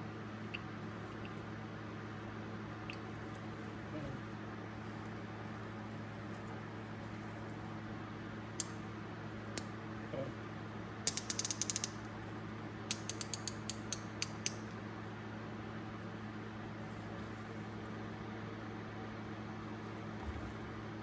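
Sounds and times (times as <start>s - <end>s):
hand ratchet clicking: 11.1s - 12.0s, 12.9s - 14.7s.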